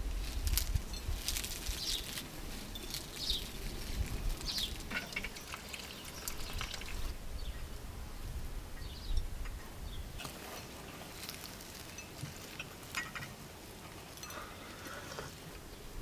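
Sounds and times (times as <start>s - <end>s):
outdoor ambience: 0.0s - 16.0s
small birds chirping: 0.9s - 7.7s.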